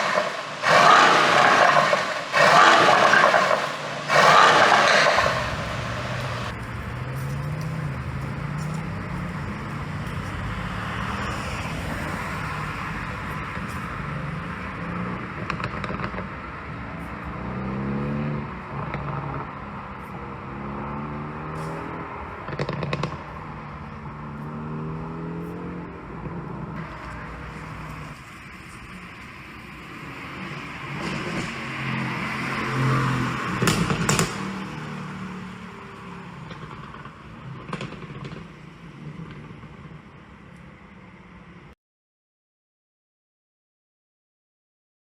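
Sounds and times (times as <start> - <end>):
exhaust pops: 0.0 - 6.6, 36.4 - 40.0
car engine revving: 0.0 - 12.9.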